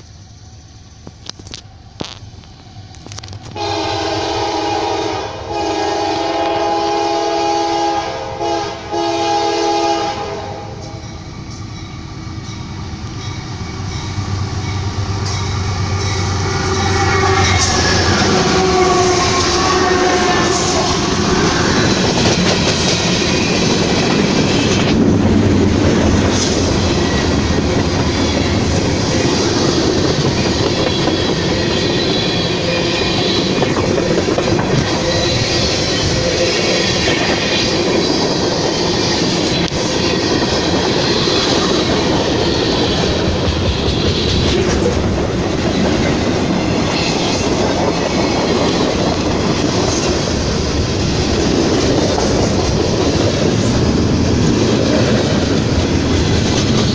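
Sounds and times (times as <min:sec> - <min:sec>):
train wheels rumbling on rails: 0:00.0 - 0:56.9
clickety-clack over rail joints: 0:01.0 - 0:03.8, 0:10.6 - 0:56.9.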